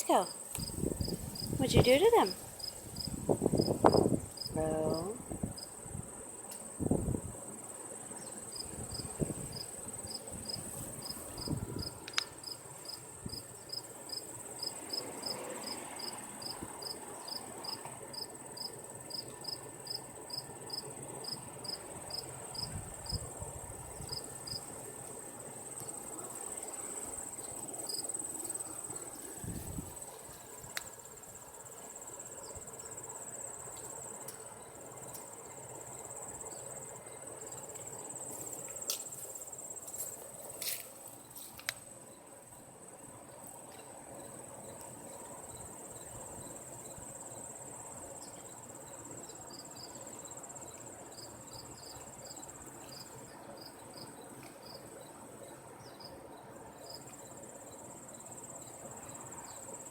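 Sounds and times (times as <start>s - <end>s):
high-pitched insect trilling: 0.0s - 5.7s.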